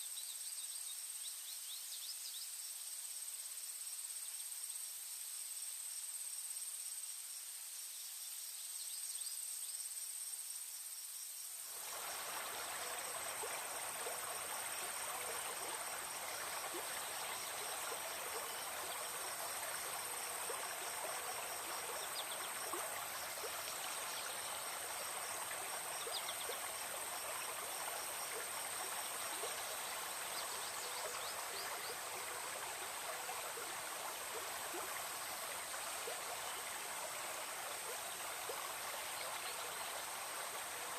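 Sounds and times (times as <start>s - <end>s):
insects chirping: 0.0s - 40.9s
insects buzzing: 9.6s - 40.9s
stream flowing: 11.6s - 40.9s.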